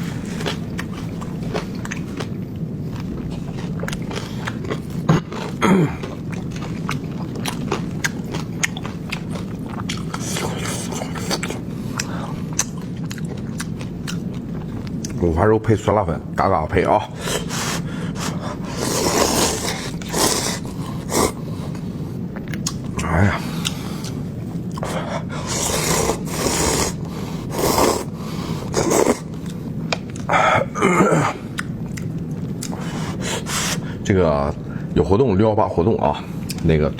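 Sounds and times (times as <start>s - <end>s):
chewing and biting: 0.0s - 15.2s
steady low hum: 0.0s - 36.9s
noodles being slurped: 17.2s - 21.8s, 24.8s - 29.3s.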